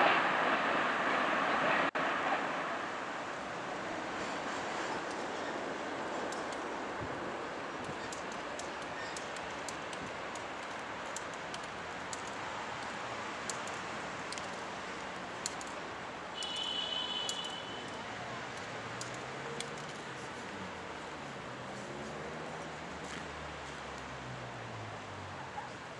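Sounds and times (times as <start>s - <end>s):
rumble and hiss: 0.0s - 25.4s
faint clicks: 6.1s - 6.8s, 7.8s - 15.8s, 16.4s - 24.1s.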